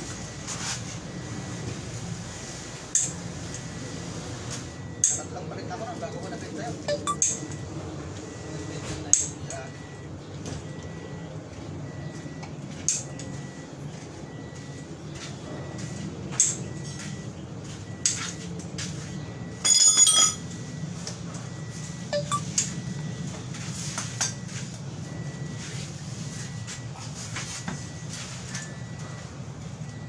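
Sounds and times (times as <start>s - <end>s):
metal objects clinking: 19.6s - 20.5s
ringing metallic clatter: 19.6s - 20.6s.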